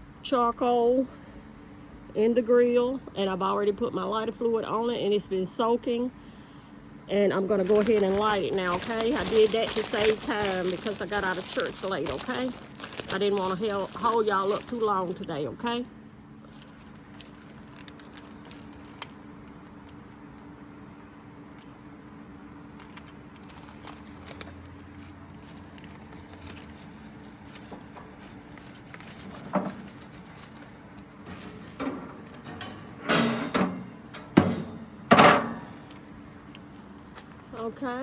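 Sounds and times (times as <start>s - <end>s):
steady low hum: 0.0s - 38.0s
small clicks and handling noises: 16.5s - 20.5s, 22.8s - 32.8s.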